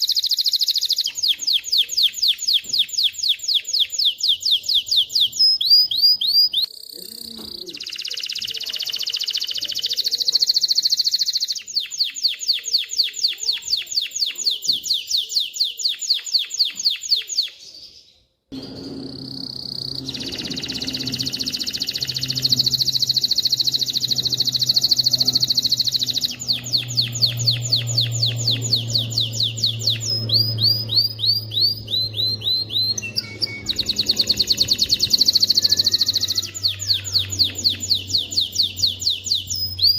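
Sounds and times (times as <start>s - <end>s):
canary singing trills: 0.0s - 39.9s
low steady hum: 18.5s - 39.9s.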